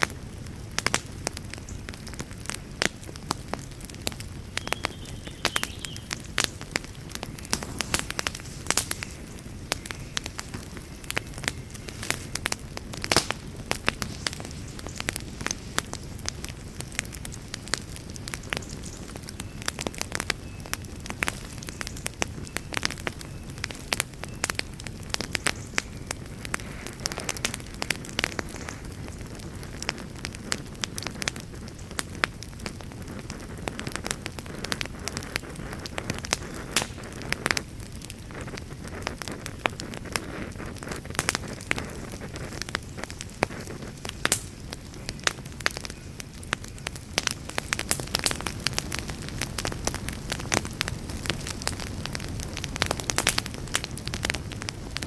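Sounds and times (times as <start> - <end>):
campfire crackling: 0.0 - 55.0
sharp pops: 4.6 - 17.8, 34.7 - 37.6, 38.4 - 45.9.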